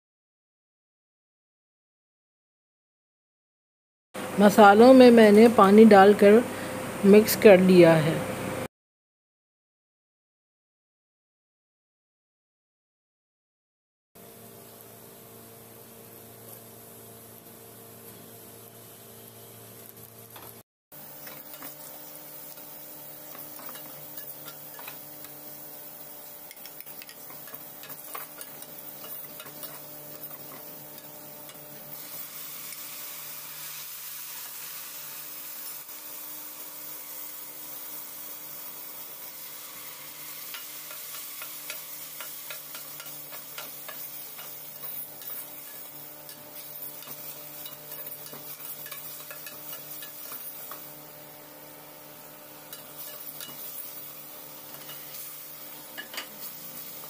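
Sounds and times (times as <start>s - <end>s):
onions sizzling in a pot: 14.2s - 57.0s.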